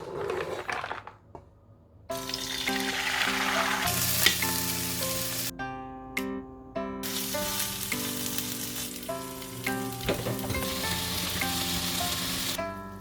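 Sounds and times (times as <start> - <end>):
light background music: 2.1 - 13.0
food sizzling in a pan: 2.2 - 5.5, 7.0 - 12.6.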